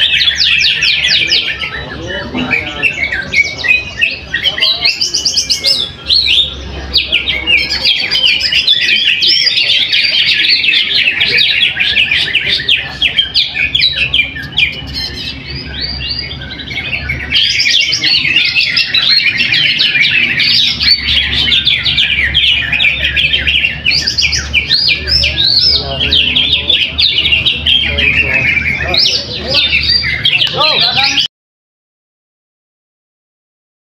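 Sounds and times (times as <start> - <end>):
bird singing chirps and whistles: 0.0 - 31.3.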